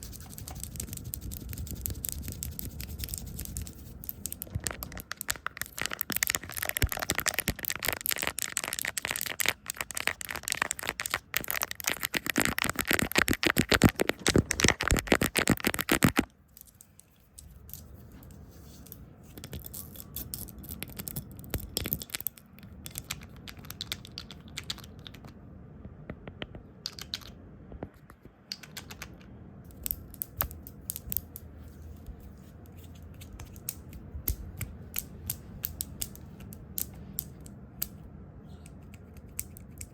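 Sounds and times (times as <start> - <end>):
rapid scratching and rustling: 0.0 - 5.1.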